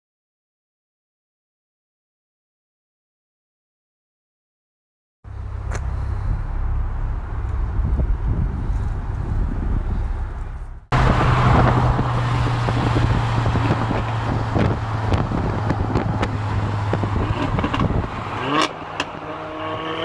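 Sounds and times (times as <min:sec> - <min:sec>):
car engine droning: 0:05.3 - 0:20.0
car engines rumbling: 0:05.3 - 0:20.0
wind and tyre noise: 0:05.3 - 0:20.0.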